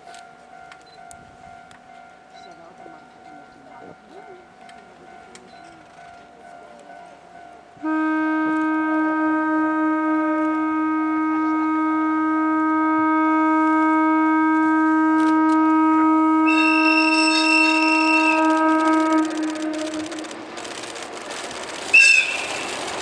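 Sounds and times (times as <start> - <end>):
train horn: 7.1 - 20.4, 21.9 - 23.0
higher horn tone: 7.8 - 20.4.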